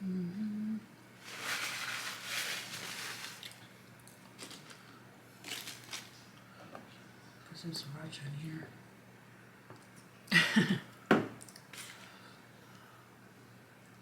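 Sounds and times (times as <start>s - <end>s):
paper wrappers crinkling: 1.2s - 3.7s, 4.3s - 6.3s
crunching of eating food: 1.2s - 6.4s.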